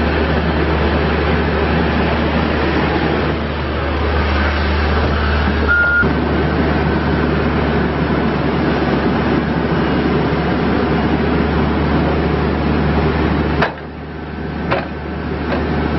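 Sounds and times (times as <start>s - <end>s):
diesel engine running: 0.0s - 15.9s
short high tone: 5.1s - 6.1s.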